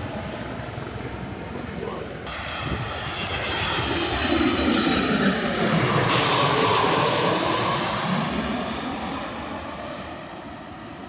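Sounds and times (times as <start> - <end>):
airliner passing overhead: 0.0 - 11.0.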